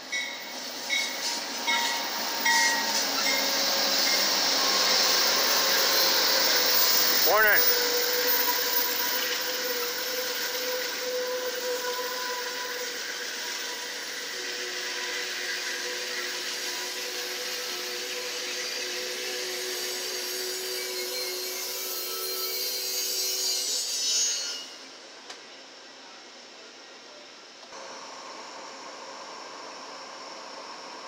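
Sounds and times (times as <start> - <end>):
train wheels rolling on rails: 0.0 - 23.7
faint squealing tones: 1.0 - 24.9.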